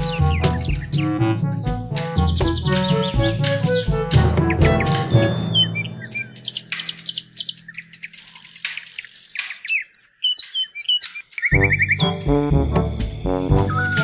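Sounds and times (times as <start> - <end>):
music track: 0.0 - 7.7, 11.5 - 14.0
birds chirping: 0.0 - 12.3.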